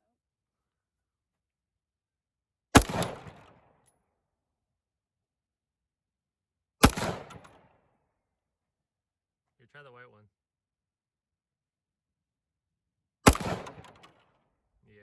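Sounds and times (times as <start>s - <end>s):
rifle shots with echo: 2.8s - 3.7s, 6.8s - 7.7s, 13.2s - 14.2s.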